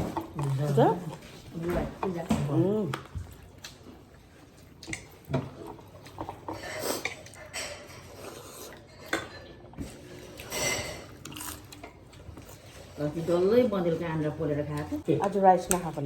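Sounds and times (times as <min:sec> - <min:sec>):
plates and utensils clinking: 0:04.9 - 0:12.0.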